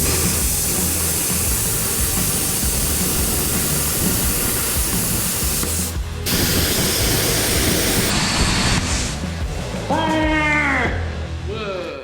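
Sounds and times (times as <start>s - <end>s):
plasma cutter hissing: 0.0s - 9.4s.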